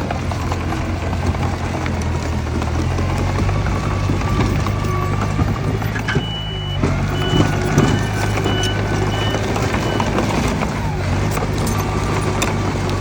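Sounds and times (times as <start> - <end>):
bulldozer diesel engine: 0.0 - 13.0
steel tracks clanking: 3.8 - 12.6
high beeping alarm: 5.8 - 10.2.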